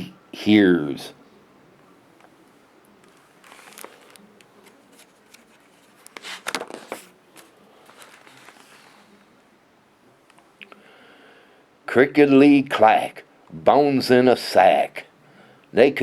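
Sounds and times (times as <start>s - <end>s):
book pages turning clicks: 3.1s - 8.8s
paper rustling: 3.1s - 9.2s.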